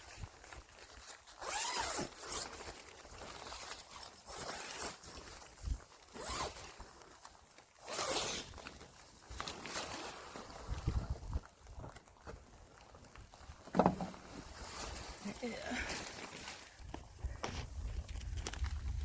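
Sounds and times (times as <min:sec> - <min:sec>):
tent zipper being pulled: 0:01.2 - 0:11.4.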